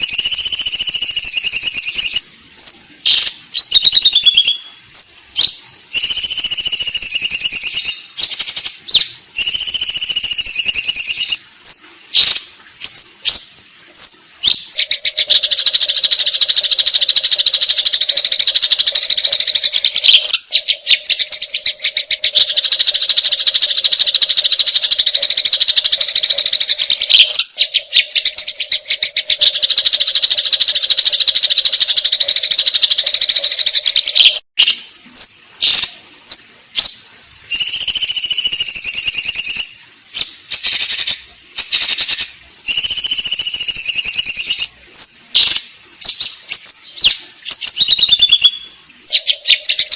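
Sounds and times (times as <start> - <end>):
sparrows chirping: 0.0 - 34.4.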